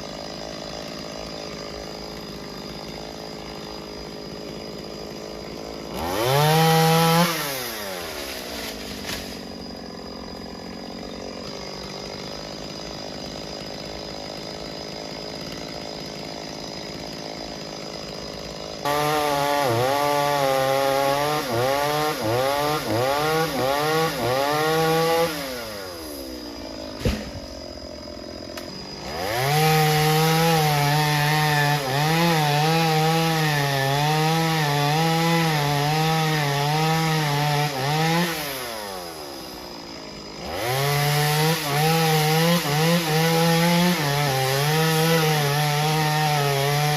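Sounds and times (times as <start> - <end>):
chainsaw cutting wood: 0.0 - 46.9
sharp knock: 27.0 - 27.4.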